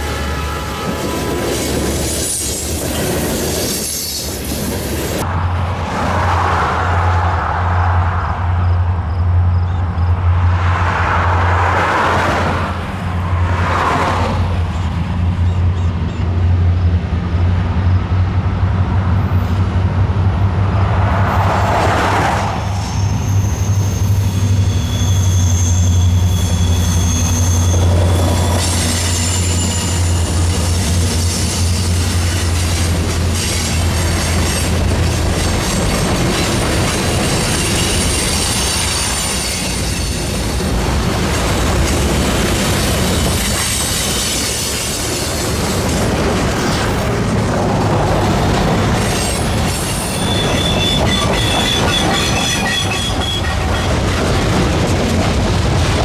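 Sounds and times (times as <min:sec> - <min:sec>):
diesel locomotive engines droning: 0:00.0 - 0:56.0
wheel squeal: 0:21.5 - 0:40.6, 0:48.4 - 0:54.3.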